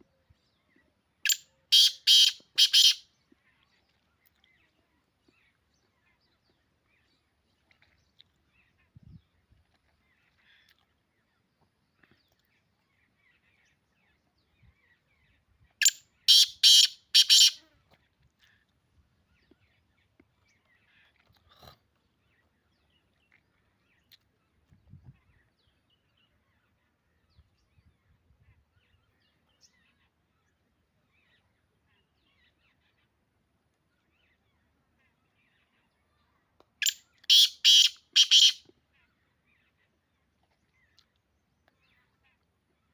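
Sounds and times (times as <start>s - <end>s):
bird calling harsh grating notes: 1.7s - 3.0s, 16.3s - 17.6s, 36.8s - 38.6s.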